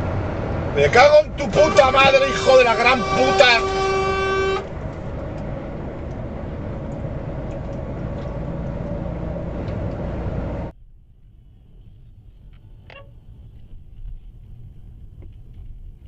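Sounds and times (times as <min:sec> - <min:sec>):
moving car road and engine noise: 0:00.0 - 0:16.0
car horn: 0:00.8 - 0:04.9.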